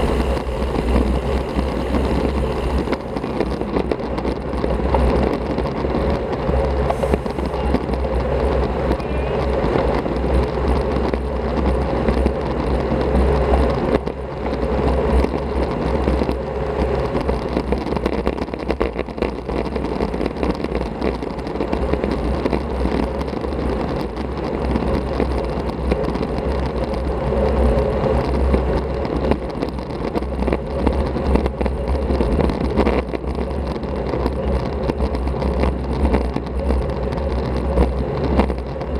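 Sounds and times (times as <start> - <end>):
wind and road noise: 0.0 - 38.9
wind buffeting on microphone: 0.0 - 38.9.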